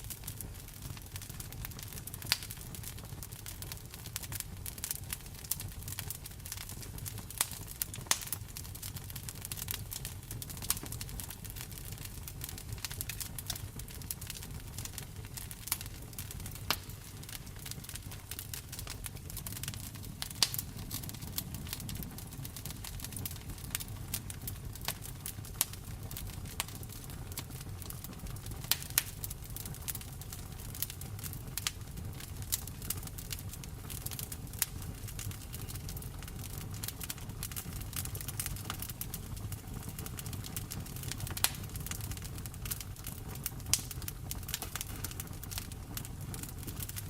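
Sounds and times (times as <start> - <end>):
soft rain hiss: 0.0 - 47.0
wood fire crackling and popping: 0.0 - 47.0.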